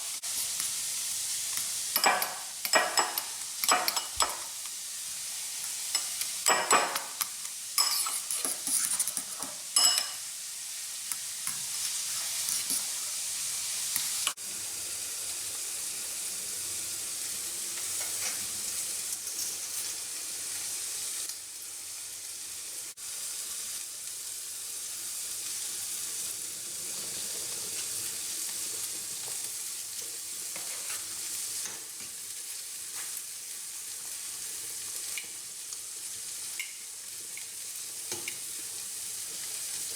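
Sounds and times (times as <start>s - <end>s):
sausage sizzling in a frying pan: 0.0s - 39.9s
utensil scraping a pan: 7.8s - 10.2s.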